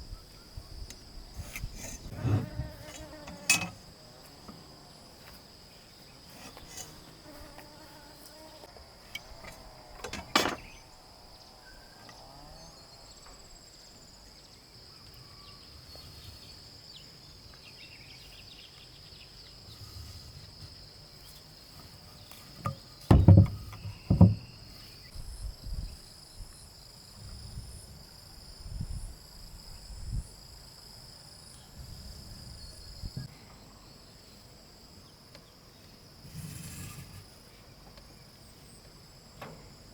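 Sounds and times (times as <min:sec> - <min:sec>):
soft thumps: 0:22.6 - 0:24.6
sharp knocks: 0:23.1 - 0:24.5.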